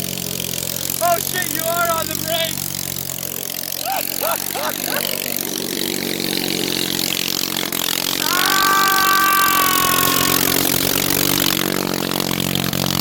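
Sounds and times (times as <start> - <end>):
tractor engine running under load: 0.0 - 13.0
high squeal of tires: 8.2 - 10.9.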